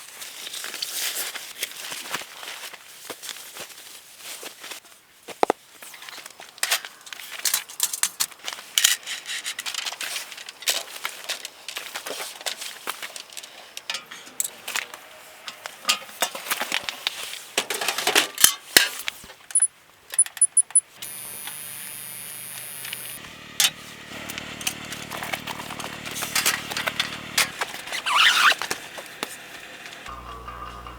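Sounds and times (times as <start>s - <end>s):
hard objects clicking and clinking: 19.5s - 21.6s
short high beeps: 19.5s - 23.2s
steady hum: 21.0s - 27.9s.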